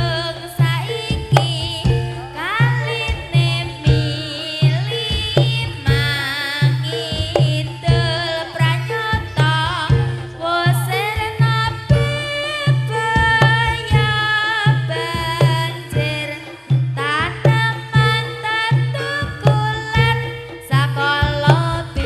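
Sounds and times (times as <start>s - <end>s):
high wavering melody: 0.0s - 22.0s.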